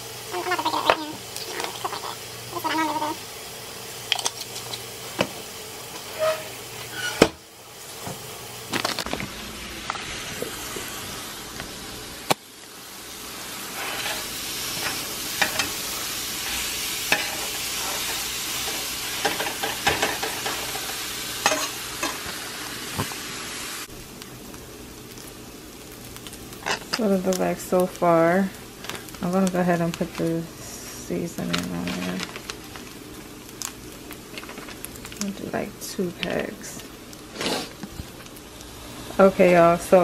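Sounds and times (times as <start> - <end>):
meat sizzling in a frying pan: 0.0 - 40.0
spatula scraping a pan: 5.9 - 7.4, 13.6 - 22.3.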